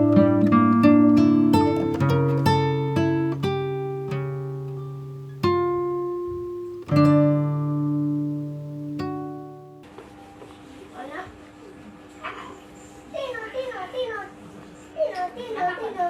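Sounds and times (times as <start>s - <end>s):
acoustic guitar plucking and strumming: 0.0s - 9.8s.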